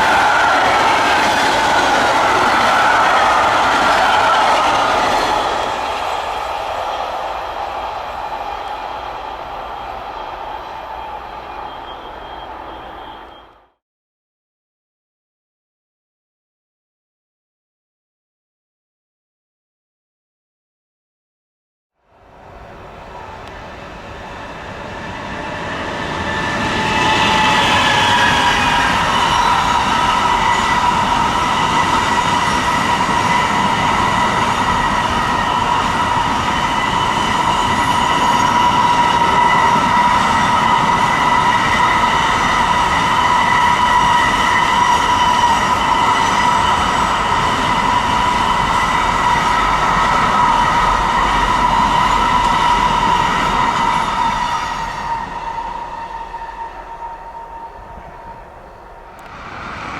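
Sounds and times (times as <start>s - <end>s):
train passing on rails: 0.0s - 13.8s, 22.0s - 59.9s
high-pitched ringing tone: 11.4s - 13.8s.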